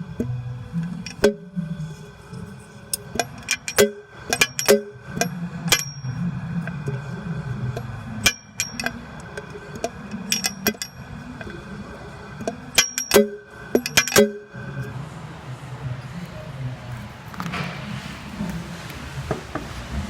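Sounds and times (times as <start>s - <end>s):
low uneven rumble: 0.0s - 20.0s
sharp metallic clinks: 3.0s - 6.3s, 8.2s - 9.0s, 10.2s - 11.5s, 12.4s - 14.6s.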